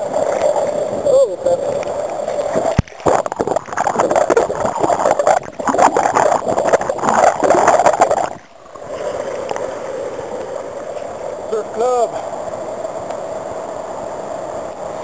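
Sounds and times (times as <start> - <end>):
river water rushing and splashing: 0.0 - 15.0.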